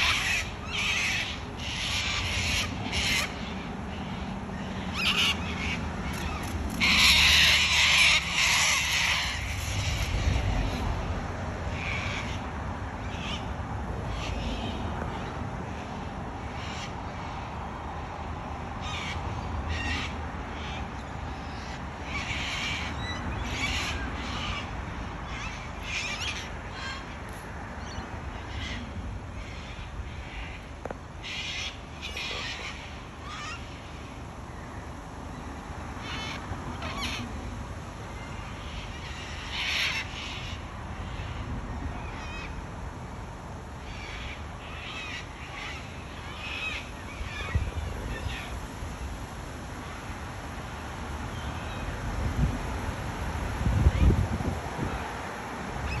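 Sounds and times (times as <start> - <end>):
cockatoos screeching: 4.7 - 10.8.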